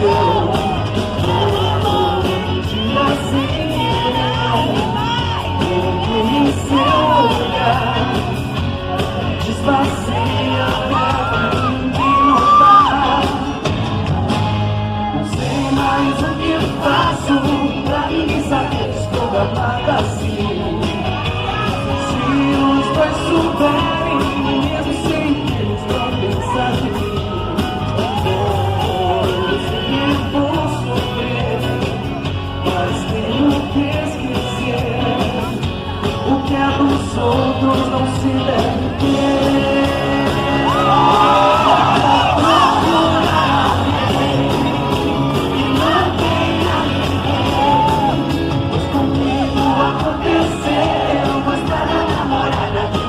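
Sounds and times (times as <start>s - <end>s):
audience shouting and whooping: 0.0s - 18.9s, 20.6s - 30.7s, 37.7s - 53.0s
live pop band with singing: 0.0s - 53.0s.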